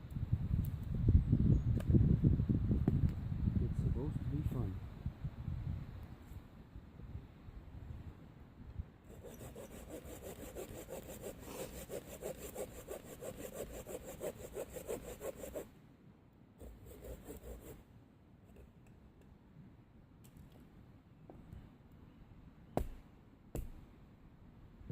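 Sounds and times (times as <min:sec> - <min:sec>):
hand saw cutting branch: 0:09.1 - 0:15.7, 0:16.6 - 0:17.8.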